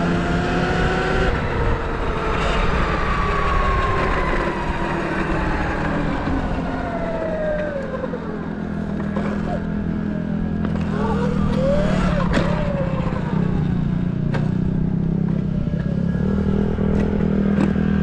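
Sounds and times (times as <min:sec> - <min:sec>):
heavy rushing noise: 0:00.0 - 0:09.8
dirt bike engine: 0:00.0 - 0:18.0.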